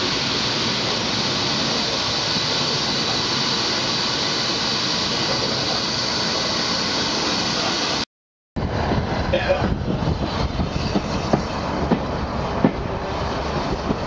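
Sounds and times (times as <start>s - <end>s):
wind rushing past moving train: 8.6s - 14.0s.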